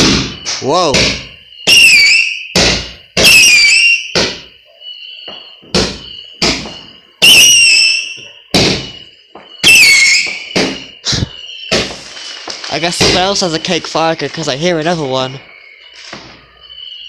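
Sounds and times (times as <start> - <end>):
falling firework whistle: 0.0 - 13.5
firework bangs: 0.0 - 14.6.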